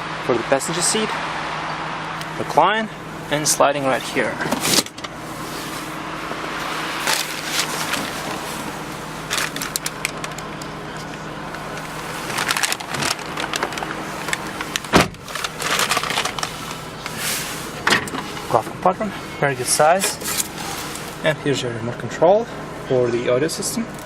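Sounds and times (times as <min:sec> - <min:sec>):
car engine idling: 0:00.0 - 0:24.0
heavy thump: 0:14.9 - 0:15.2.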